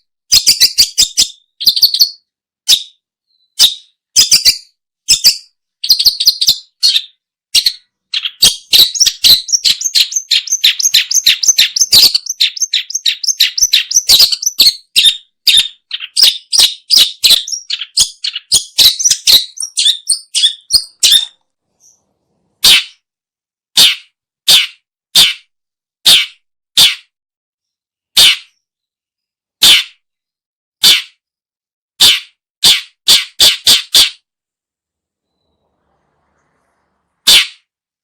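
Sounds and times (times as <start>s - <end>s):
shrike calling: 7.6s - 22.0s.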